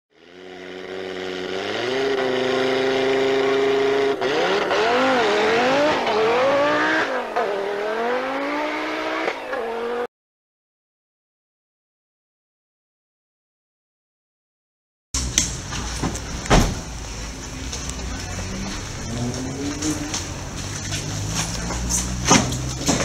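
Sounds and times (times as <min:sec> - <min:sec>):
race car engine revving: 0:00.1 - 0:10.1, 0:15.2 - 0:23.0.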